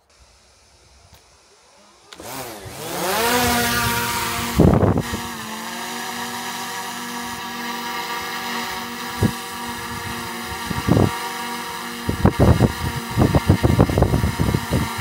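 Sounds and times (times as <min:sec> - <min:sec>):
drone propellers whining: 0:00.0 - 0:15.0
wind rush on microphone: 0:02.7 - 0:05.6, 0:08.6 - 0:15.0.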